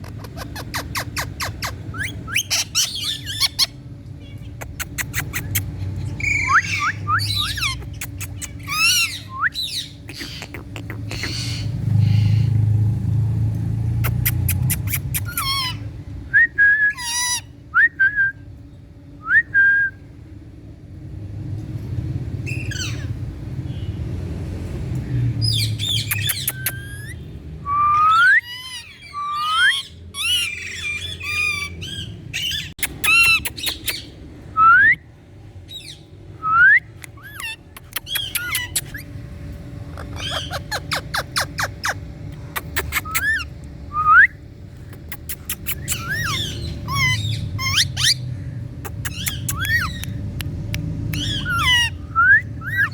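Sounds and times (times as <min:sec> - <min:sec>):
parrot calling: 0:00.0 - 0:03.8, 0:04.4 - 0:12.6, 0:14.0 - 0:15.9, 0:16.9 - 0:17.5, 0:25.4 - 0:27.2, 0:27.9 - 0:34.2, 0:37.0 - 0:39.2, 0:39.9 - 0:44.3, 0:44.9 - 0:50.3, 0:51.1 - 0:52.9.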